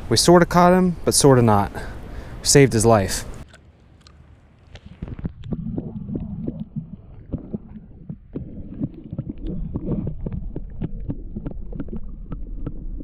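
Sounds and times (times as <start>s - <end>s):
microphone handling noise: 4.6s - 13.0s.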